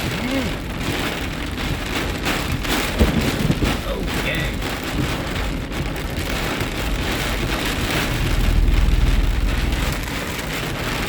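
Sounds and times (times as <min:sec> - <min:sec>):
heavy rain on a car roof: 0:00.0 - 0:11.0
low rumble: 0:03.6 - 0:11.0.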